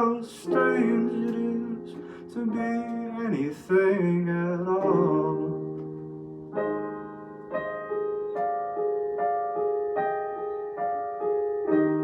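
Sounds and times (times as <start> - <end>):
keyboard piano notes: 0.0 - 12.0.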